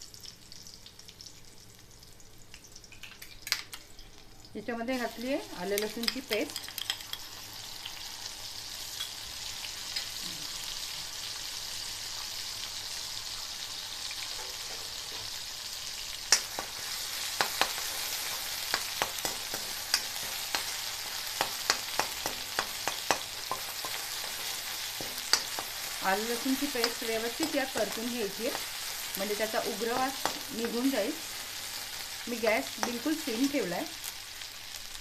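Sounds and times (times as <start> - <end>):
paste sizzling in hot oil: 5.0 - 35.0
spoon clicking and scraping pan: 5.8 - 7.3, 16.3 - 28.7, 29.4 - 31.0, 32.7 - 33.1.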